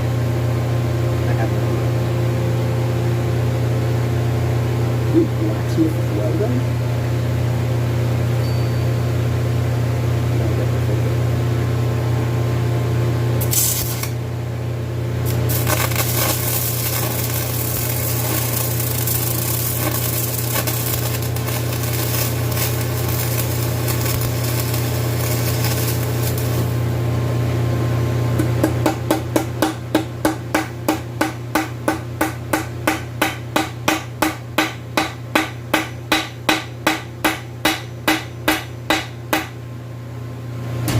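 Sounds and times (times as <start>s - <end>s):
steady low hum: 0.0s - 40.9s
welding arc hissing and crackling: 13.4s - 14.2s, 15.2s - 27.0s
hammer striking metal: 28.6s - 39.6s.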